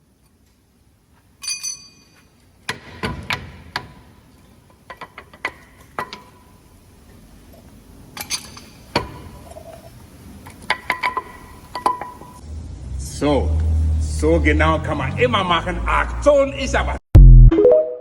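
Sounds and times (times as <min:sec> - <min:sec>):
metal parts clinking: 0:01.4 - 0:02.3, 0:08.1 - 0:12.2.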